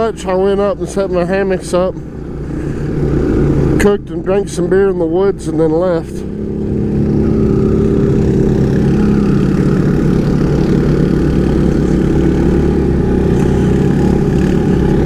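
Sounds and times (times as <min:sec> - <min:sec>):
motorbike engine running: 0:06.3 - 0:15.0.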